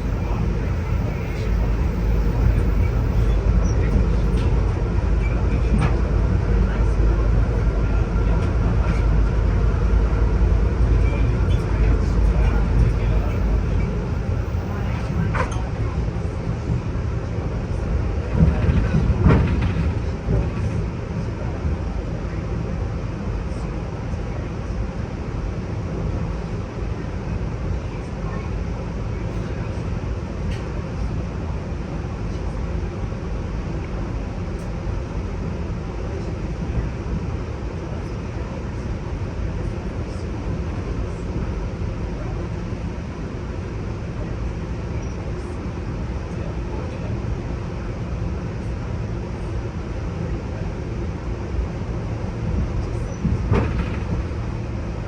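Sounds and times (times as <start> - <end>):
train car rumble: 0.0 - 55.0.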